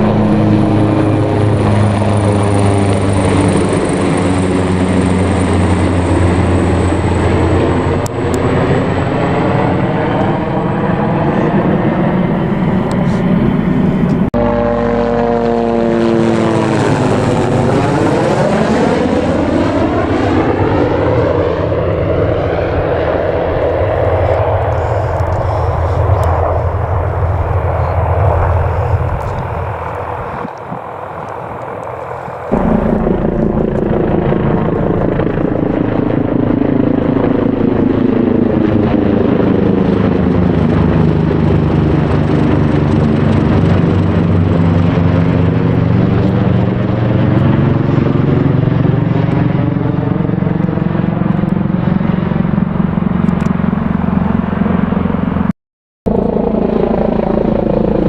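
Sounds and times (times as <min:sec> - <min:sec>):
helicopter landing: 0:00.0 - 0:55.5, 0:56.1 - 0:58.0
helicopter lifting off: 0:00.0 - 0:55.5, 0:56.1 - 0:58.0.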